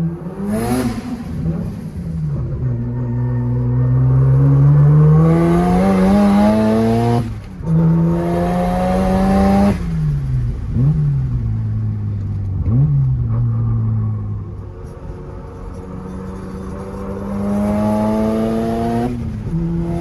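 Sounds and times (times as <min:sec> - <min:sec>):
rotary engine accelerating: 0:00.0 - 0:11.5, 0:15.6 - 0:20.0.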